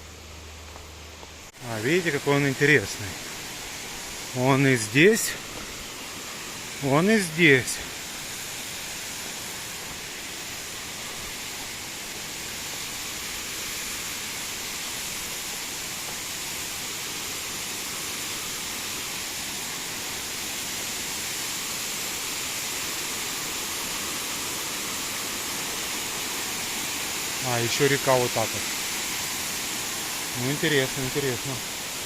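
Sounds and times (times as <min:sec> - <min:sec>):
river water rushing: 0:00.0 - 0:32.0.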